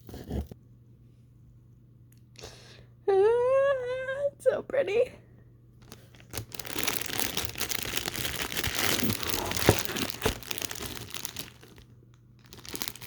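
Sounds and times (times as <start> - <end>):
crinkling packaging rustling: 5.8 - 13.0.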